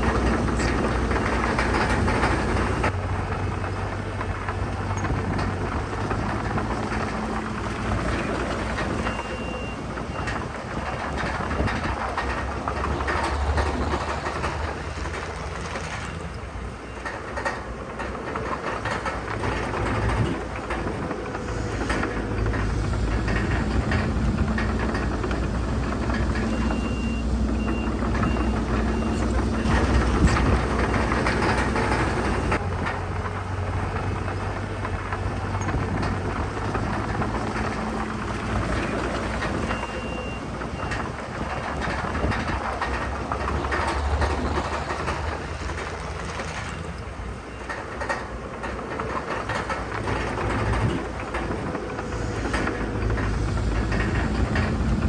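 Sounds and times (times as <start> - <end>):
metal clanking: 0.0 - 2.9, 17.0 - 33.2
heavy diesel machinery engines: 0.0 - 55.0
reversing alarm beeping: 24.8 - 32.6.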